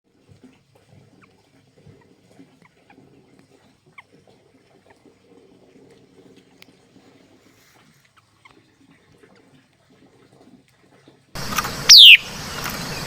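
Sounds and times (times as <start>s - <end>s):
bird squeaky call notes: 11.8s - 12.3s.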